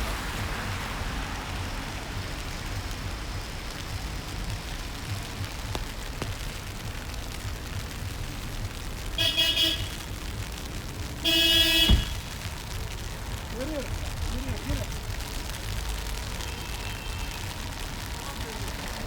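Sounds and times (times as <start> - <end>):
street traffic rumble: 0.0 - 19.0
car horn honking: 9.2 - 10.0, 11.2 - 12.3.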